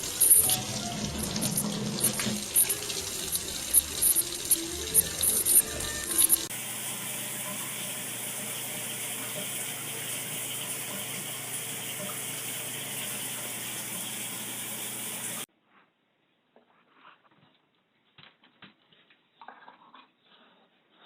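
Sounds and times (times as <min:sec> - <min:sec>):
running water from a tap: 0:00.0 - 0:15.5.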